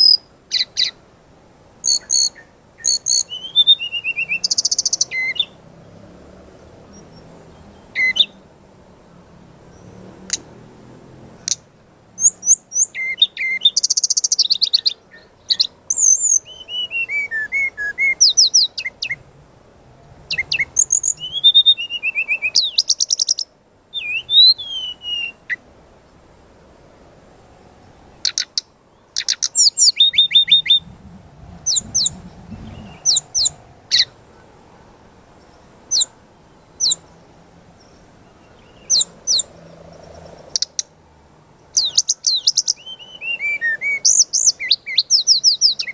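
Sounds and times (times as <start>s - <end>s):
bird singing whistles and trills: 0.0s - 1.0s, 1.8s - 5.6s, 6.9s - 8.4s, 12.2s - 19.2s, 20.3s - 25.6s, 29.2s - 31.0s, 31.6s - 34.1s, 36.8s - 37.0s, 37.8s - 39.5s, 41.8s - 45.9s.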